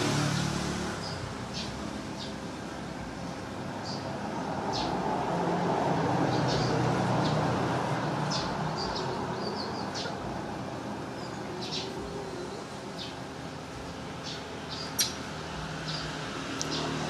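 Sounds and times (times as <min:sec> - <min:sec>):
small animals chirping: 0:14.2 - 0:15.3.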